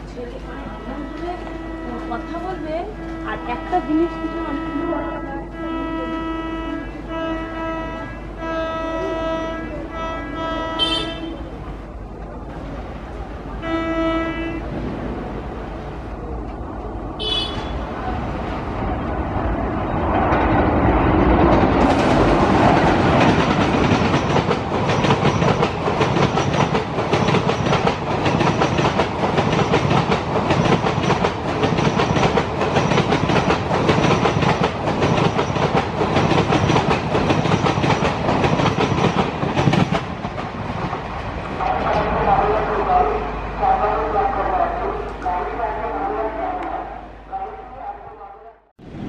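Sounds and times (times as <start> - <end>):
rushing air and rail noise: 0.0 - 49.0
train horn: 0.5 - 11.6, 13.6 - 14.8, 17.2 - 17.9
train wheels clattering: 20.0 - 42.1.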